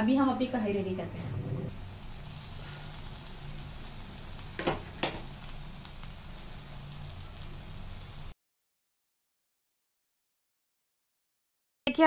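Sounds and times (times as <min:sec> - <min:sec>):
gravy sizzling in a pan: 0:01.7 - 0:08.4.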